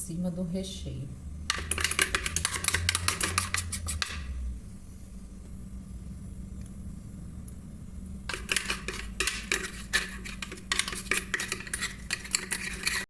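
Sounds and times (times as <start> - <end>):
steady low hum: 0.0 - 13.0
spoon scraping and clinking dish: 1.5 - 4.3, 8.3 - 13.0.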